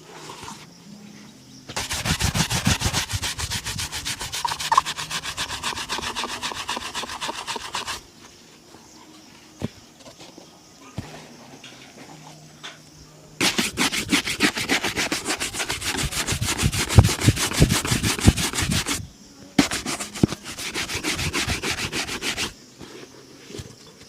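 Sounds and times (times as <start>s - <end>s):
leather shoe being buffed: 1.7s - 8.0s, 13.4s - 19.0s, 19.6s - 22.6s.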